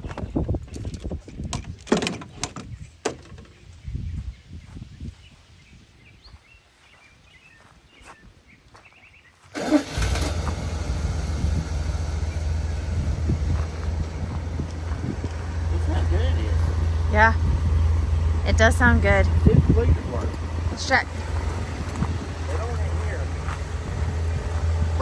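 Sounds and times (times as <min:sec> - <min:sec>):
faint bird chirps: 0:03.5 - 0:09.5
pickup engine starting and running: 0:09.4 - 0:25.0.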